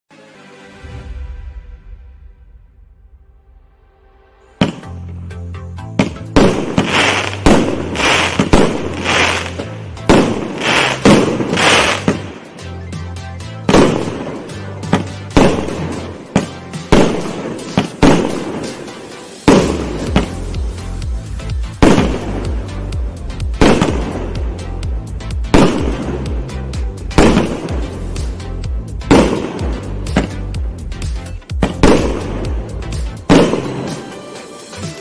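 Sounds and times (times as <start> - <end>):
background music: 0.1 - 35.0
firework launch bangs: 4.6 - 5.0, 6.0 - 12.4, 13.7 - 20.4, 21.8 - 22.6, 23.6 - 24.3, 25.5 - 26.3, 27.2 - 28.0, 29.1 - 30.4, 31.6 - 32.6, 33.3 - 34.1
firework crackling and hissing: 6.4 - 12.3.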